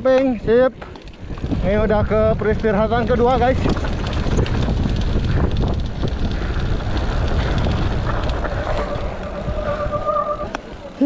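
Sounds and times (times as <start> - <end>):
tyres rolling on dirt: 0.1 - 11.0
wind buffeting microphone: 0.3 - 11.0
bike brakes squealing: 8.5 - 10.7.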